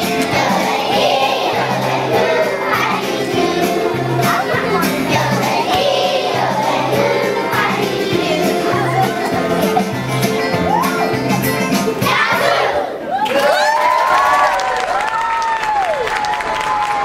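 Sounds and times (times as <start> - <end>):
children singing together: 0.0 - 10.3, 11.9 - 13.0
music with steady bass line: 1.4 - 12.2.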